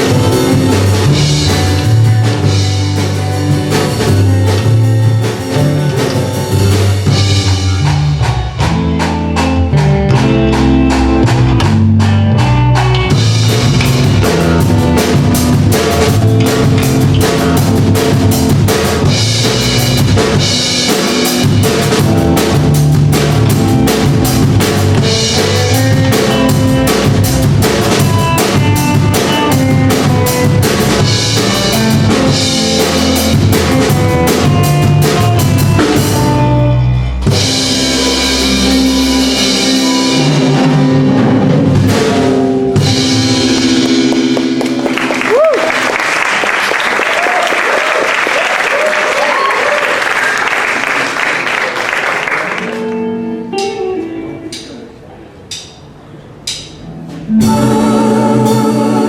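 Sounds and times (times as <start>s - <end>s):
bass drum and snare beat: 0.0s - 36.6s, 37.3s - 45.6s
band music: 0.0s - 59.0s.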